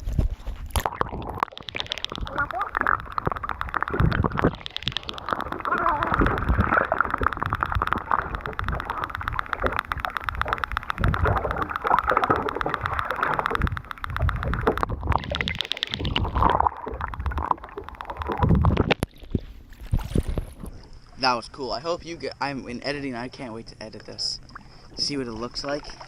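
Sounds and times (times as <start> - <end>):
water gurgling around hull: 0.0 - 26.0
boat motor running: 0.7 - 19.2.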